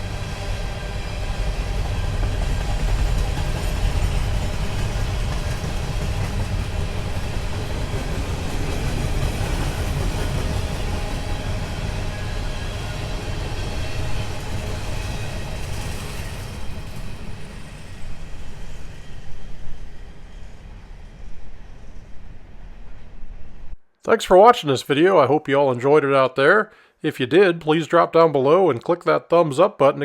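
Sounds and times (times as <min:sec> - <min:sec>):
train wheels rumbling on track: 0:00.0 - 0:23.6.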